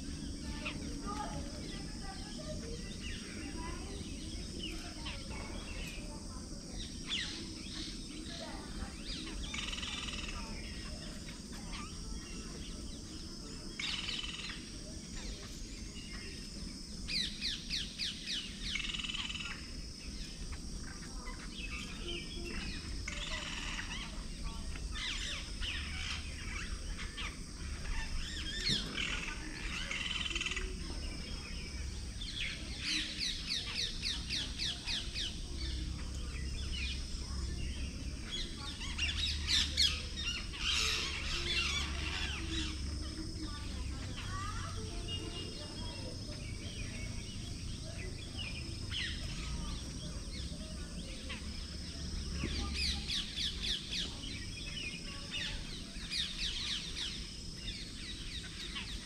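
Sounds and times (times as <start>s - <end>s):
steady outdoor background noise: 0.0s - 59.0s.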